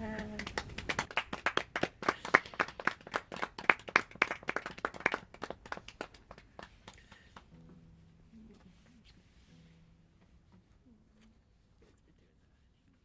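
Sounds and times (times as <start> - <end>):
people clapping: 0.0 - 7.5.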